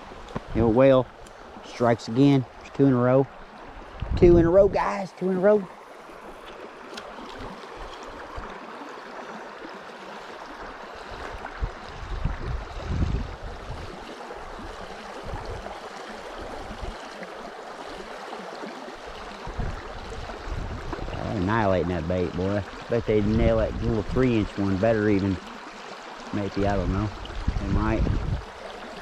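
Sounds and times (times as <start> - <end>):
river water rushing: 4.7 - 23.4, 24.4 - 27.5, 28.3 - 29.0.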